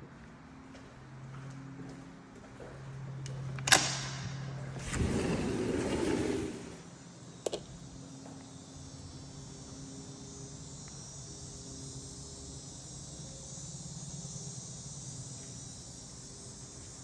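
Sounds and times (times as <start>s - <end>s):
high-pitched insect chorus: 7.0s - 17.0s.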